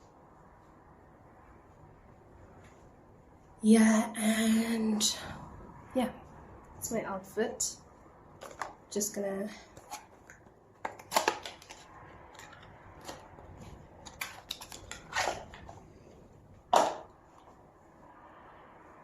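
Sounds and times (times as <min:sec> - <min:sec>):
objects being handled: 0:08.3 - 0:08.9, 0:09.7 - 0:17.6.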